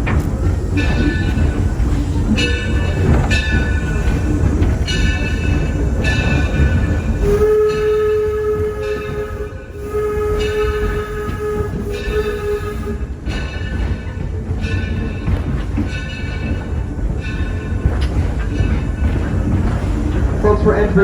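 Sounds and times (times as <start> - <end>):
locomotive bell ringing: 0.0 - 21.0
steam train rumbling: 0.0 - 21.0
steam whistle blasts: 7.2 - 13.4.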